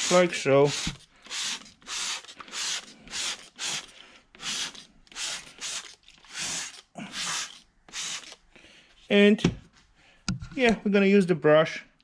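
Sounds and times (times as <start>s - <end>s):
short hissing strokes: 0.0s - 8.4s.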